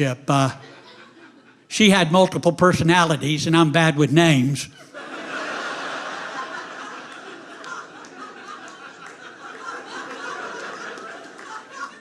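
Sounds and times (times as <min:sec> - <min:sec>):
audience laughing: 0:00.0 - 0:02.3, 0:04.7 - 0:12.0.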